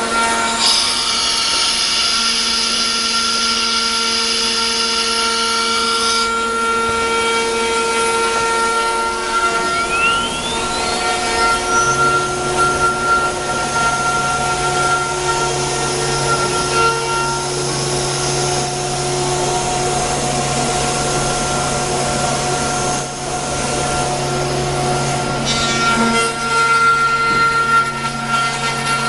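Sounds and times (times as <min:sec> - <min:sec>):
wood router spindle whine: 0:00.0 - 0:29.0
hiss of cutting: 0:00.5 - 0:06.3
low hum: 0:08.0 - 0:25.4.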